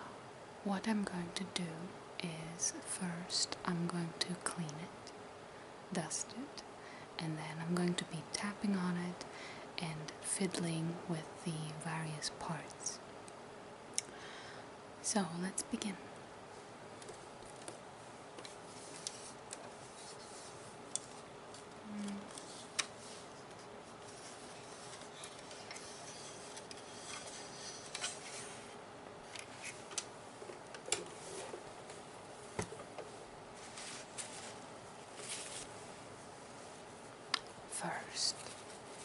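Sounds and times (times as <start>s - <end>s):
soft rubbing and rustling: 16.4s - 37.2s, 37.8s - 39.0s.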